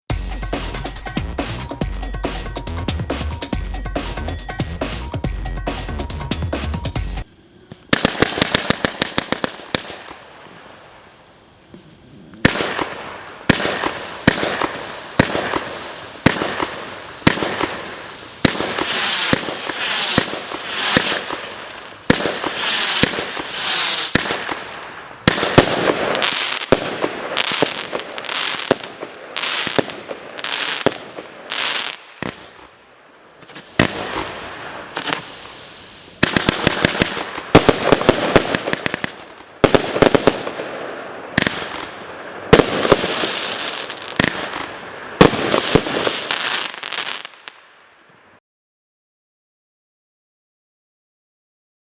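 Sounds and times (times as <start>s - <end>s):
firework burst hiss: 7.0s - 28.8s, 33.4s - 40.5s.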